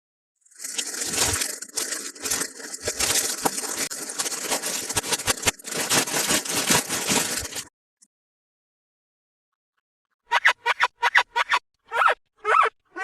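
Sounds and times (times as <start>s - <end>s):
packaging crackling and scraping: 0.4s - 7.7s.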